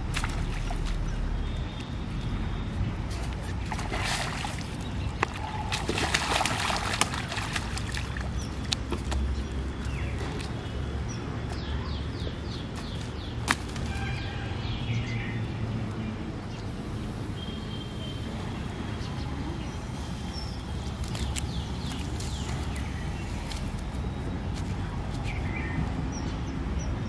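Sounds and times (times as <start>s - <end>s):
steady low rumble: 0.0s - 1.6s
small birds chirping: 3.4s - 27.0s.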